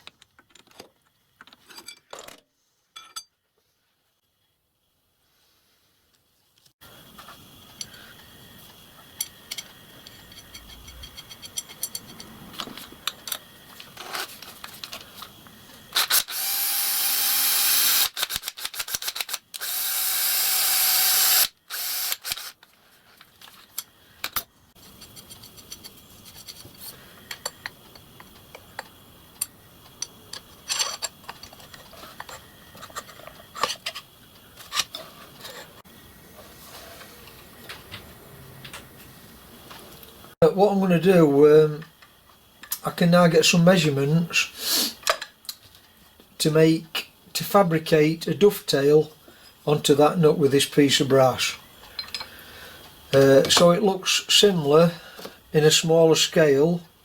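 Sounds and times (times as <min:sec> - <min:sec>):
metal tools clicking and knocking: 0:09.2 - 0:12.4, 0:23.7 - 0:34.0, 0:51.8 - 0:52.4
loud rushing hisses: 0:44.5 - 0:45.0.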